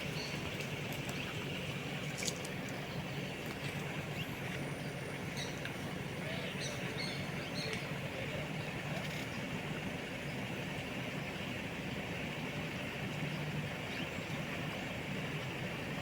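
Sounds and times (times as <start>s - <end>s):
constant high hiss: 0.0s - 16.0s.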